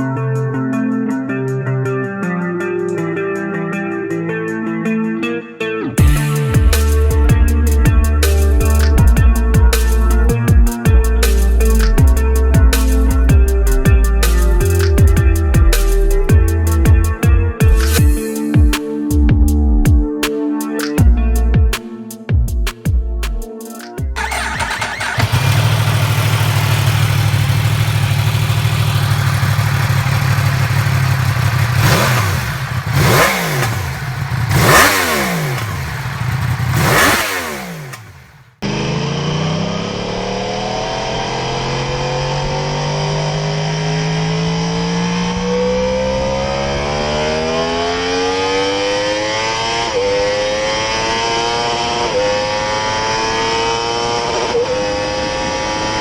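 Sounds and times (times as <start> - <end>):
motorcycle engine idling: 24.2 - 39.2
motorcycle engine accelerating: 24.2 - 56.0
motorcycle engine revving: 24.2 - 56.0.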